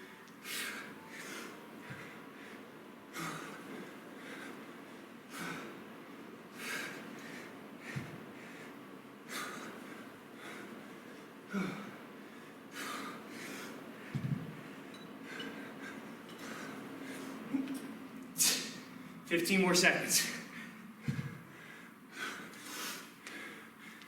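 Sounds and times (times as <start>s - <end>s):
man breathing hard: 0.0s - 19.2s, 20.3s - 24.0s
dull thump: 14.1s - 14.5s.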